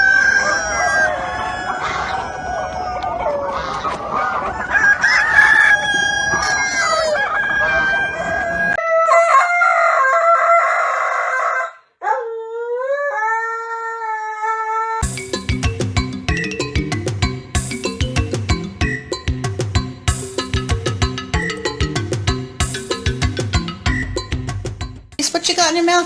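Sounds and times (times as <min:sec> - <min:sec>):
hens clucking: 0:00.0 - 0:09.2
roosters crowing: 0:00.0 - 0:15.0.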